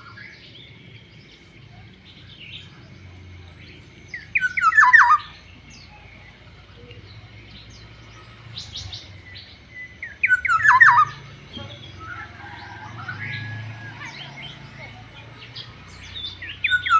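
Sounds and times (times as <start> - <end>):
bird harsh calls: 4.1 - 6.2, 7.0 - 16.9.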